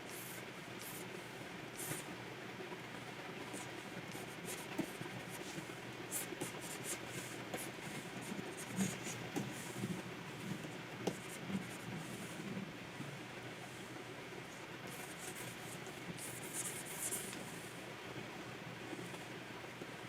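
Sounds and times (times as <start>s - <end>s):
stylus scratching on pen tablet: 3.6s - 9.8s, 14.9s - 17.3s.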